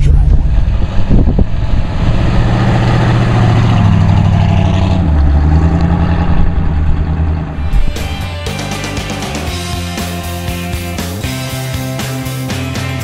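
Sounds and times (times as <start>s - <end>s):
car engine rumbling past: 0.0s - 8.4s.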